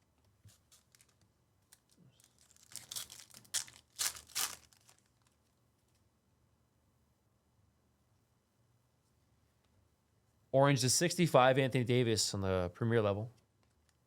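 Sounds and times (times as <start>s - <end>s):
wrapper tearing and crinkling: 0.6s - 5.4s.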